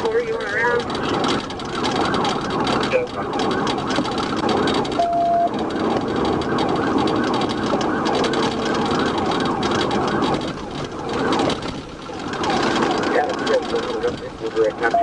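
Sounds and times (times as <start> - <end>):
police sirens yelping: 0.0 - 15.0
vehicles driving: 0.0 - 15.0
short steady beep: 5.0 - 5.6.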